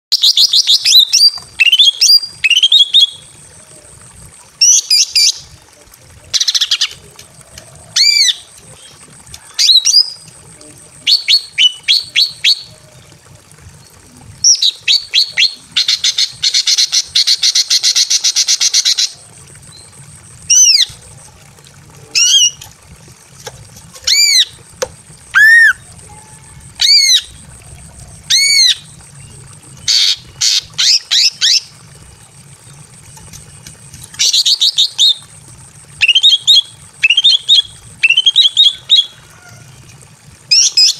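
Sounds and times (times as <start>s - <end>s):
bird calling: 24.0s - 31.8s.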